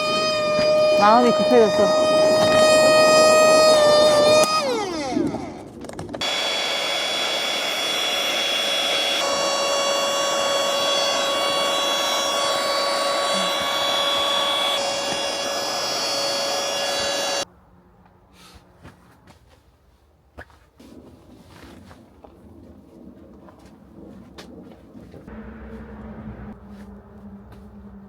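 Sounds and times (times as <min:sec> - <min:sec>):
small electric motor whining: 0:00.0 - 0:17.4.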